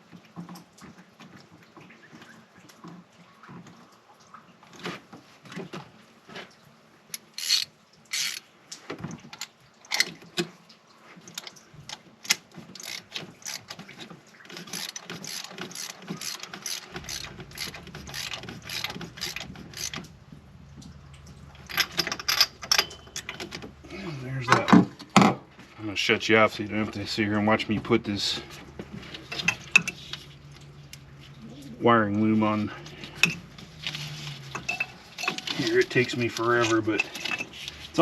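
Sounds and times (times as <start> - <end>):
socket ratchet clicking: 7.2 - 8.4, 14.6 - 20.0.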